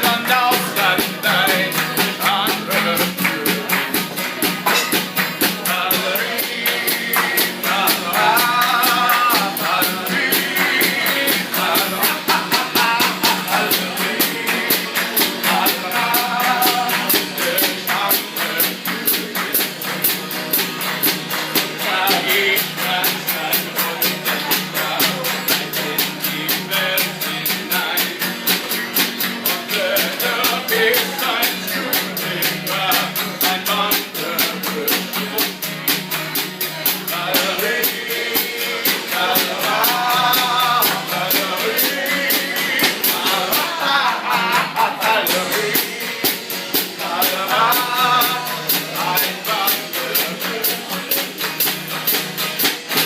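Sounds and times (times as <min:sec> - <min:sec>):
fast steady beat: 0:00.0 - 0:53.0
guitar accompaniment: 0:00.0 - 0:53.0
person singing: 0:05.4 - 0:20.1, 0:21.6 - 0:28.4, 0:29.5 - 0:35.6, 0:36.9 - 0:51.5.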